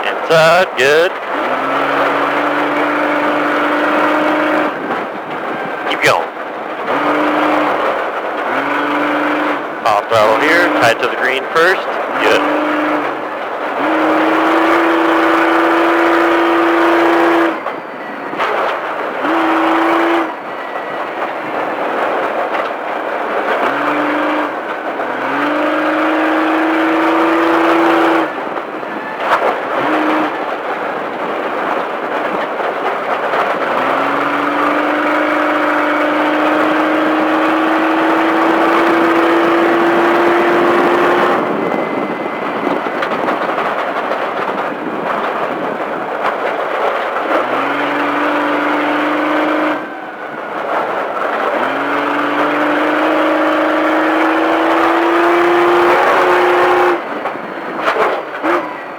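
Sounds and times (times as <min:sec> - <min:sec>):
steady rushing noise: 0:00.0 - 0:01.2, 0:09.1 - 0:13.6
truck engine under hard throttle: 0:00.0 - 0:58.9.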